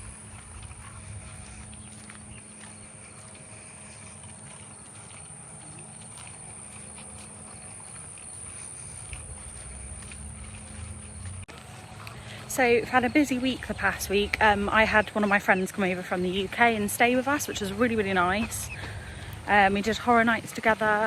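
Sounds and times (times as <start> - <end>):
wind rumble on microphone: 0.0 - 4.6
footsteps on a path: 0.0 - 21.0.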